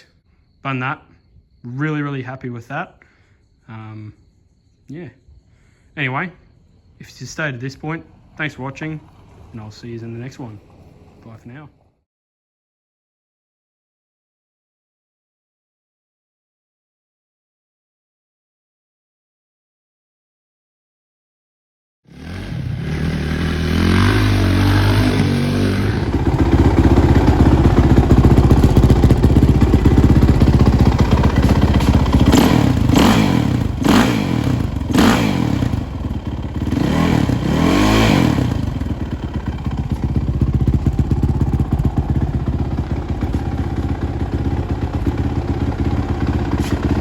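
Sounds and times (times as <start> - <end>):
motocross bike engine revving: 22.1 - 47.0
engine cracks: 24.8 - 47.0.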